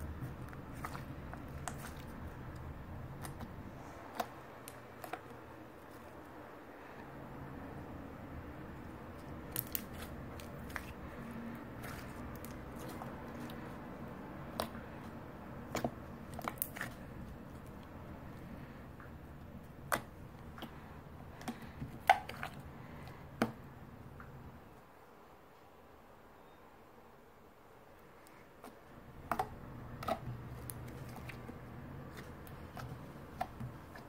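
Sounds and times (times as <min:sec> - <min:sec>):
slime popping and clicking: 0:09.5 - 0:10.9.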